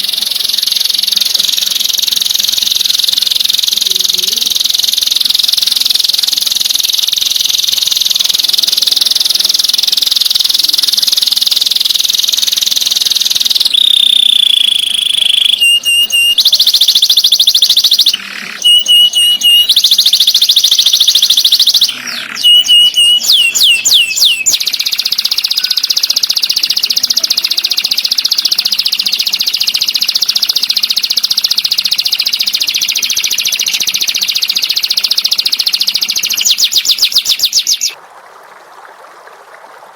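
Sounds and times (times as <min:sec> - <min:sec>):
bird chips: 0:00.0 - 0:38.0
bird held whistle: 0:00.0 - 0:38.0
songbird buzzing trill: 0:00.0 - 0:38.0
falling whistled bird notes: 0:13.6 - 0:38.0.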